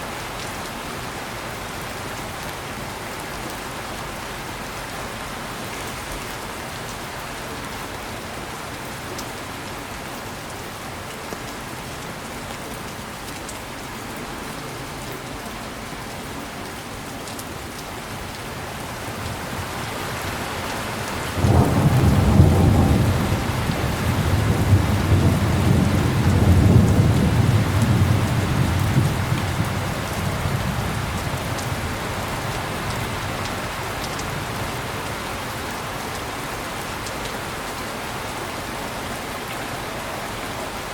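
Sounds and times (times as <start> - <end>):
heavy rain falling: 0.0 - 40.9
thunder rumbling: 21.1 - 32.1.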